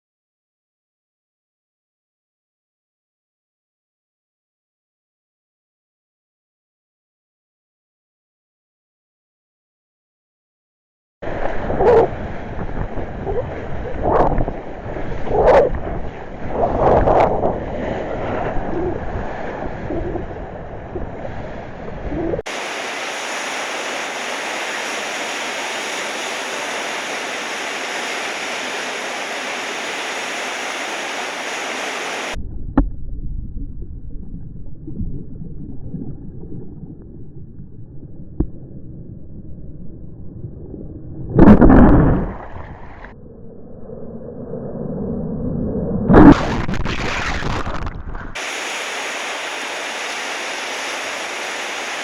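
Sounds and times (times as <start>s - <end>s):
ocean surf: 11.2s - 32.4s, 46.1s - 52.0s
muffled rush of water: 11.2s - 43.2s, 46.1s - 52.0s
wind buffeting microphone: 11.3s - 22.5s
steady hiss: 22.5s - 32.4s, 48.4s - 52.0s.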